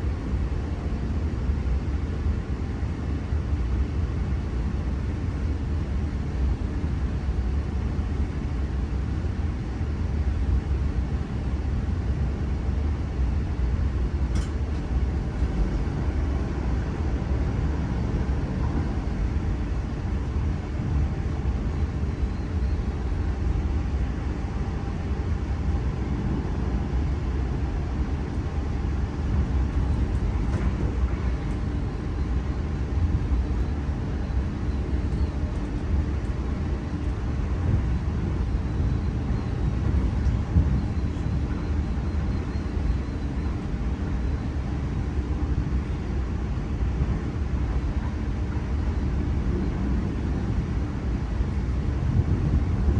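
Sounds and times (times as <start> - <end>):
train rumbling: 0.0 - 52.9
brief click: 14.3 - 14.6.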